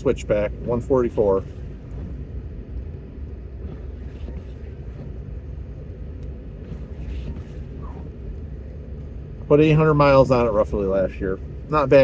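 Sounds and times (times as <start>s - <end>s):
truck engine and tyres rumbling: 0.0s - 12.0s.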